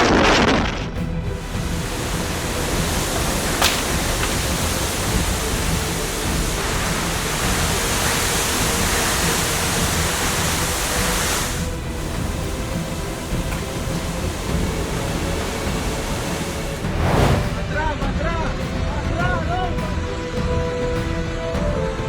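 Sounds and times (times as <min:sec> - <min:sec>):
faint background music: 0:00.0 - 0:22.0
storm rushing noise: 0:13.2 - 0:18.0.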